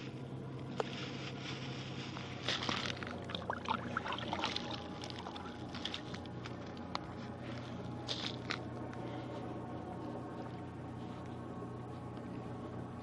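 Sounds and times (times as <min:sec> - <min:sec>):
steady low hum: 0:00.0 - 0:13.0
water splashing and plopping: 0:03.2 - 0:05.5.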